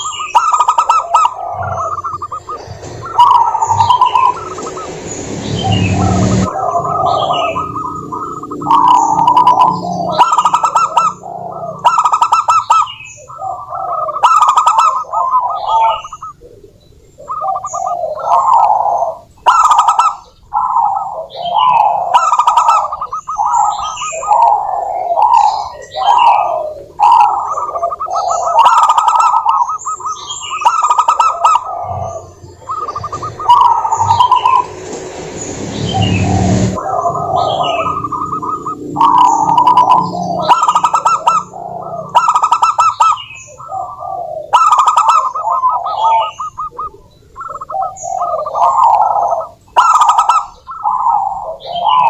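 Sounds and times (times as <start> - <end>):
doves cooing: 0.0 - 52.0.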